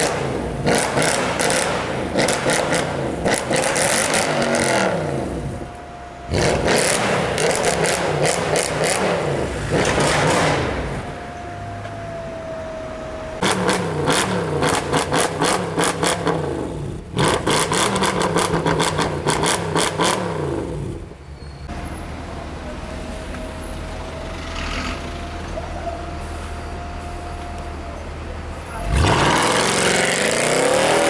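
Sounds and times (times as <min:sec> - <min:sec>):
car engine revving: 0:00.0 - 0:05.6, 0:06.3 - 0:11.2, 0:13.4 - 0:21.1, 0:28.6 - 0:31.0.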